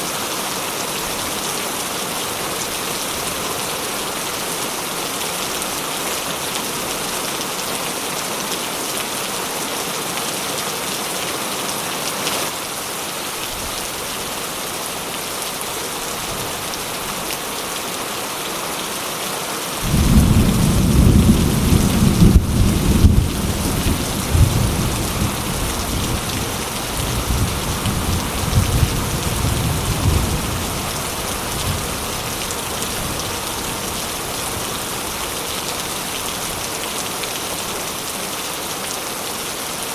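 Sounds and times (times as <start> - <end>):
steady rain: 0.0 - 39.9
thunder rumbling: 19.8 - 32.0.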